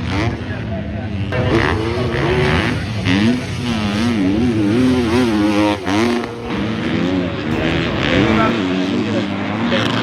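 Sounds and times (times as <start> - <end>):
motocross bike engines revving: 0.0 - 10.0.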